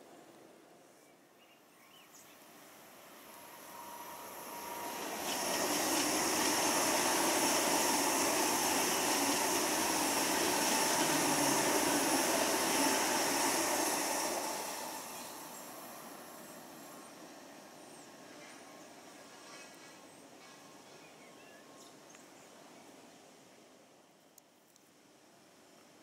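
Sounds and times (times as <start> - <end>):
high-speed train rushing past: 2.3 - 21.0
thin whine: 3.0 - 17.2.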